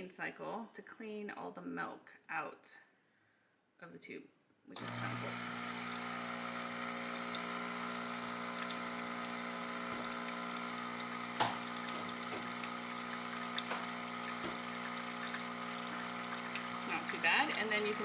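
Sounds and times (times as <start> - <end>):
espresso machine pump humming: 4.8 - 18.0.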